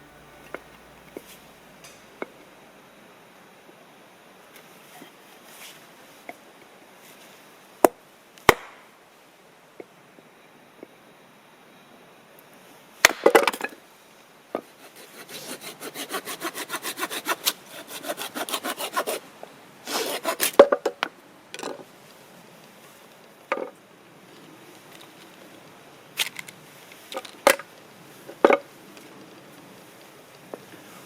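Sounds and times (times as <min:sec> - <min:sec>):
hand saw cutting wood: 0:14.7 - 0:20.8.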